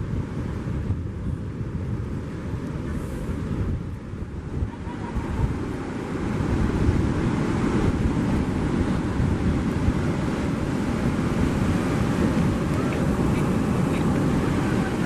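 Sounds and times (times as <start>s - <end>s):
surf washing: 0.0s - 15.0s
wind buffeting microphone: 0.0s - 15.0s.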